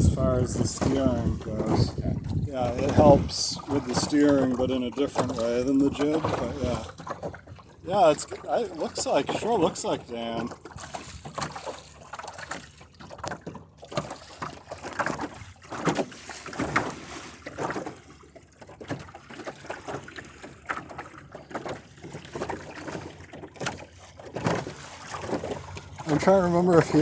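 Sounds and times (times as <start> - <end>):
wind noise on microphone: 0.0 - 4.7
water splashing against hull: 0.0 - 27.0.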